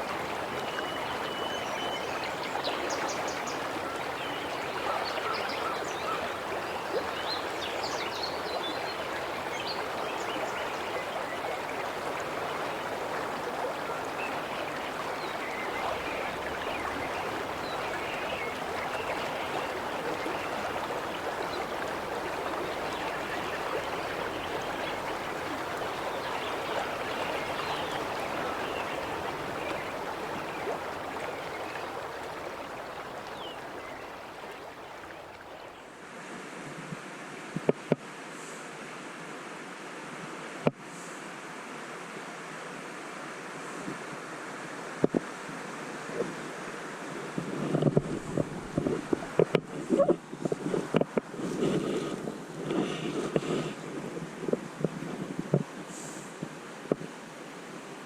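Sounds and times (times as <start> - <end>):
river water rushing: 0.0 - 36.5, 44.3 - 50.1.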